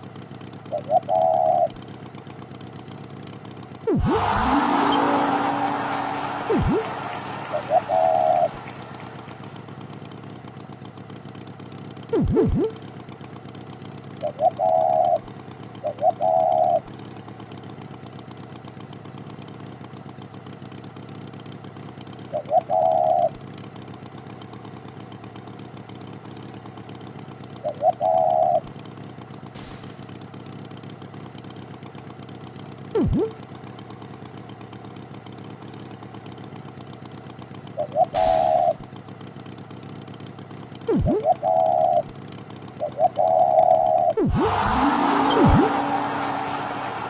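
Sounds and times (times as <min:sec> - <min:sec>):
cartoon tractor engine idling: 0:00.0 - 0:47.0
quick falling swoops: 0:03.9 - 0:09.6, 0:12.1 - 0:12.8, 0:29.6 - 0:30.2, 0:33.0 - 0:33.3, 0:37.8 - 0:38.8, 0:40.9 - 0:41.4, 0:44.2 - 0:47.0
short warbling sounds: 0:03.9 - 0:09.6, 0:12.1 - 0:12.8, 0:33.0 - 0:33.4, 0:37.8 - 0:38.8, 0:40.9 - 0:42.0, 0:44.0 - 0:46.9.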